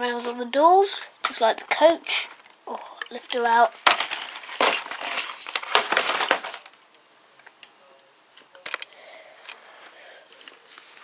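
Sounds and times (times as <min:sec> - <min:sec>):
plastic packaging crinkling: 0:01.3 - 0:06.8.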